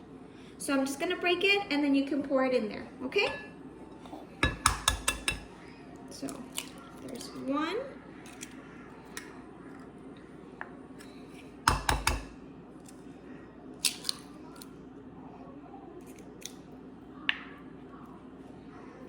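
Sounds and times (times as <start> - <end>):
eggs knocking on cup rim: 4.4 - 5.5, 11.7 - 12.3.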